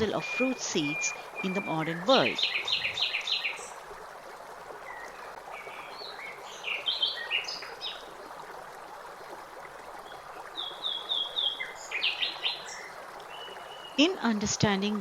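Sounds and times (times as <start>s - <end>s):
small birds chirping: 0.0s - 3.8s
flowing water rushing: 0.0s - 15.0s.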